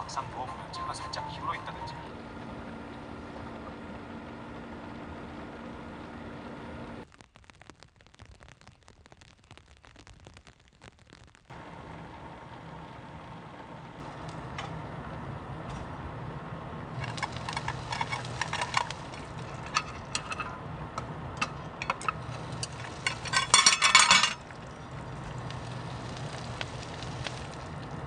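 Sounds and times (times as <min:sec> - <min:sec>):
dishes and cutlery clinking: 0:17.0 - 0:20.6, 0:21.4 - 0:24.4.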